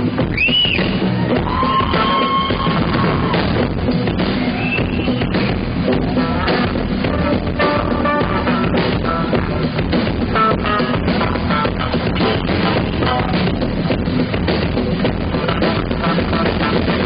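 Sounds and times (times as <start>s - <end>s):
drum kit beat: 0.0s - 17.0s.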